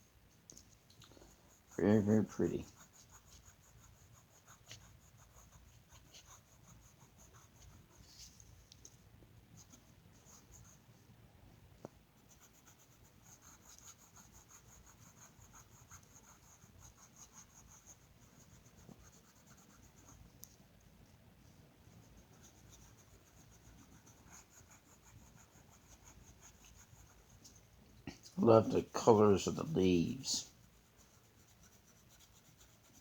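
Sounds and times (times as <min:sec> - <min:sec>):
colouring tool scratching paper: 0:01.2 - 0:08.3, 0:12.3 - 0:20.2, 0:21.9 - 0:27.6, 0:30.5 - 0:33.0.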